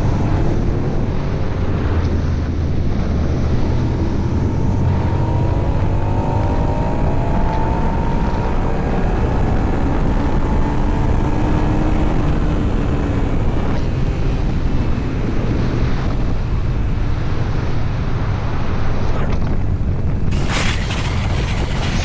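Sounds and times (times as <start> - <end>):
motorcycle engine: 20.3 - 22.0.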